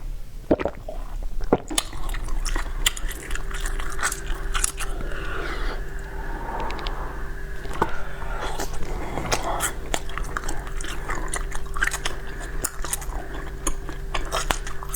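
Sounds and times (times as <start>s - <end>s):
ice crunching between teeth: 1.4s - 5.4s, 8.6s - 14.9s.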